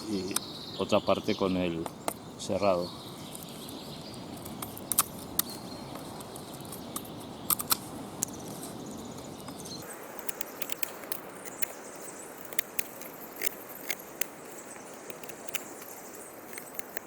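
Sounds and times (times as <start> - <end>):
knife carving wooden stick: 9.2 - 17.0.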